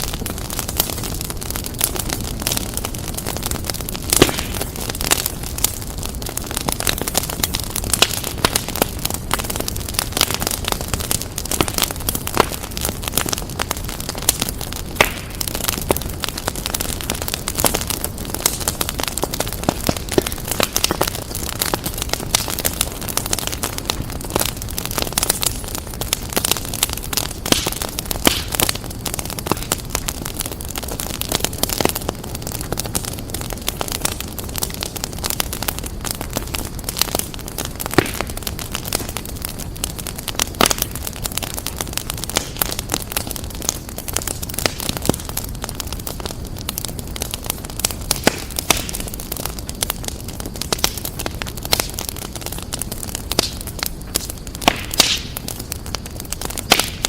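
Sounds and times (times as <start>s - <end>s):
low rush of flames: 0.0s - 57.0s
wood fire crackling: 0.0s - 57.0s
sharp pops and snaps: 15.0s - 15.6s, 26.5s - 30.1s, 37.1s - 39.2s, 47.8s - 49.1s, 53.3s - 57.0s.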